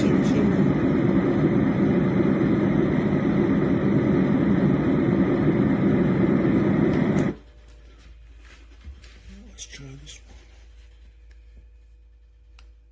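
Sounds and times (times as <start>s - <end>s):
sound machine low rumbling noise: 0.0s - 7.8s.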